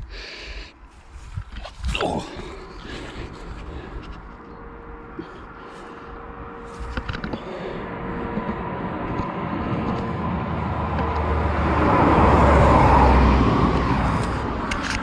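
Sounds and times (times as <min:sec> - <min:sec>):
road vehicle passing: 0:02.4 - 0:15.0.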